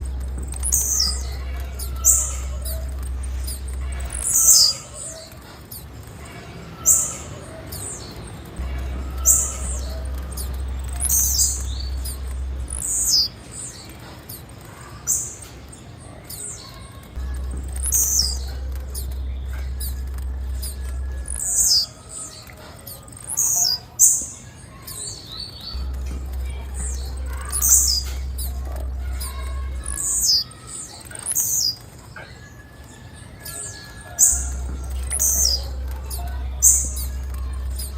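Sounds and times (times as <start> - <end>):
low hum: 0.0 - 6.2, 8.2 - 13.6, 17.2 - 22.0, 25.8 - 30.6, 34.3 - 37.9
bird chirping: 0.0 - 37.9.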